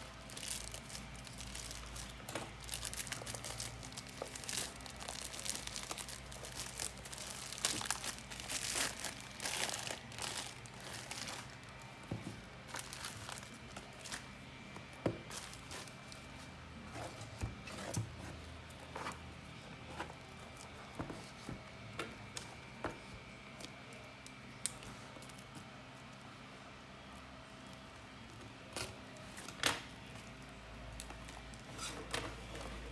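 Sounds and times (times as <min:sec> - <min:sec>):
packaging crinkling and rustling: 0:00.0 - 0:14.6, 0:15.2 - 0:16.4.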